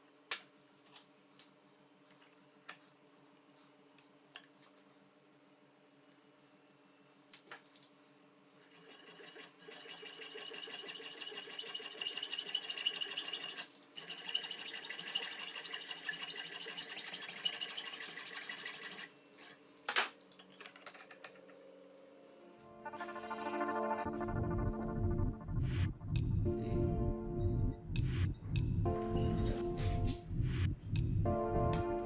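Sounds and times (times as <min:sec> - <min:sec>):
cutting machine rasping: 0:08.6 - 0:19.1.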